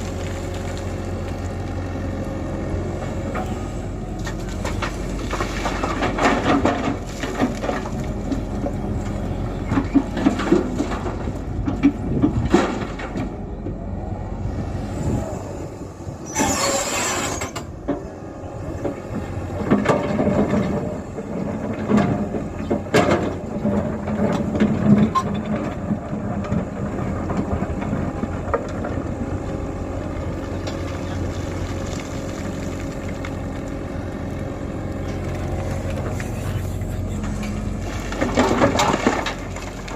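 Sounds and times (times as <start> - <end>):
excavator diesel engine: 0.0 - 39.9
metal clanks and knocks: 9.6 - 13.4, 18.8 - 29.0, 37.0 - 39.9.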